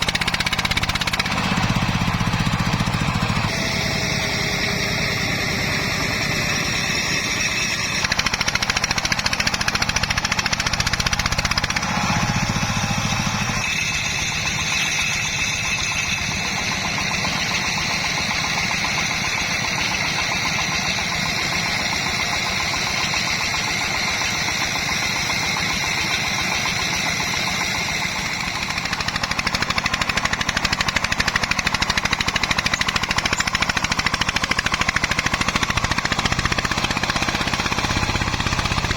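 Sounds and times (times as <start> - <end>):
diesel engine knocking: 0.0 - 38.9.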